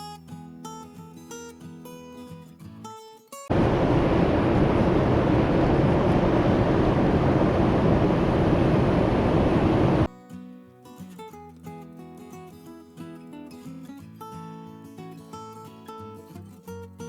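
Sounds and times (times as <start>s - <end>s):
quiet acoustic guitar music: 0.0s - 3.5s, 10.1s - 17.0s
wind buffeting microphone: 3.5s - 10.1s.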